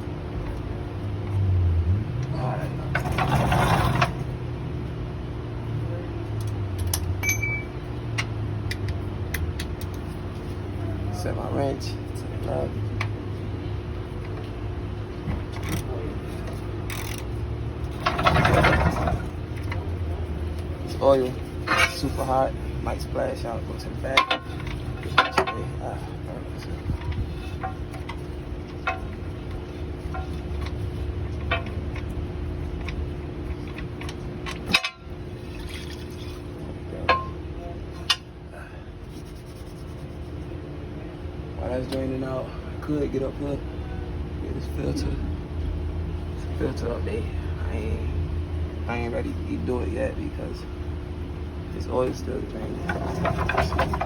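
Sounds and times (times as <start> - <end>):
steady shop hum: 0.0 - 54.0
sharp metallic clinks: 7.2 - 7.8
ratchet wrench clicking: 16.9 - 17.3
oil pouring from drain hole: 35.3 - 36.6.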